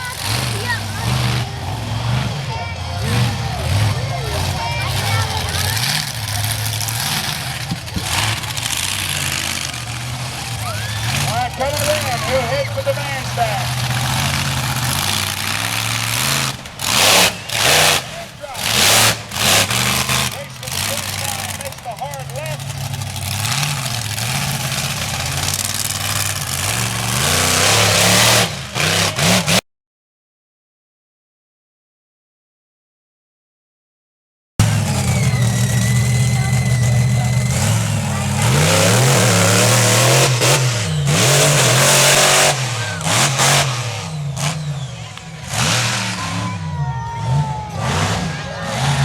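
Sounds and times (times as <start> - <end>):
truck engine revving hard: 0.0 - 29.6, 34.6 - 49.0.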